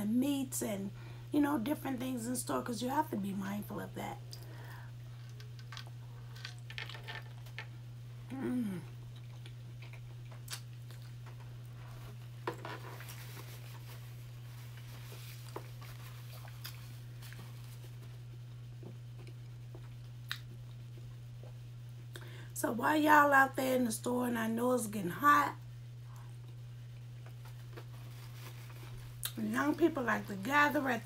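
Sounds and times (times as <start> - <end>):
steady low hum: 0.0 - 31.0
person humming mm: 8.3 - 9.0
chewing with wet mouth clicks: 9.1 - 11.3, 18.8 - 21.1.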